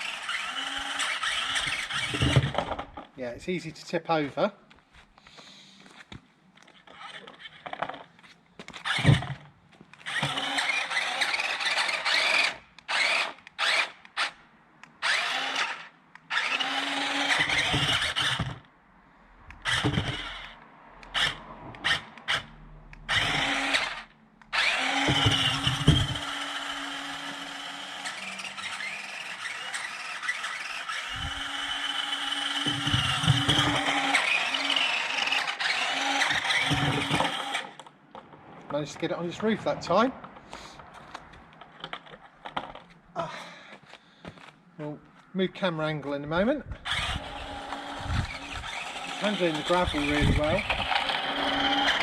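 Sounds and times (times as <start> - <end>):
small electric motors whining: 0.0 - 3.1, 8.6 - 14.4, 15.0 - 18.7, 19.5 - 37.9, 46.7 - 52.0.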